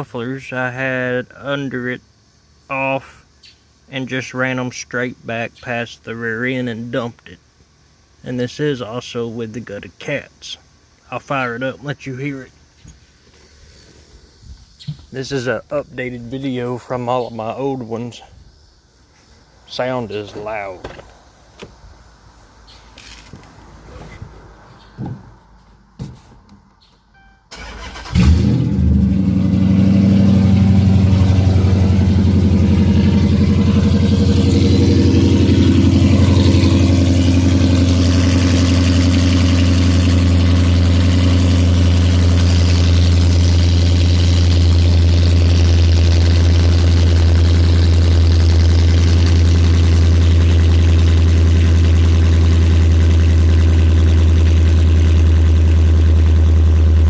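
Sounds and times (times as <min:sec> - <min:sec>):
car engine cranking: 0:26.8 - 0:57.0
loud car engine idling: 0:27.6 - 0:57.0.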